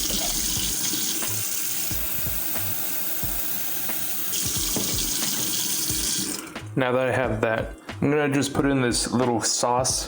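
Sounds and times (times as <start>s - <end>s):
water running from a tap: 0.0s - 6.7s.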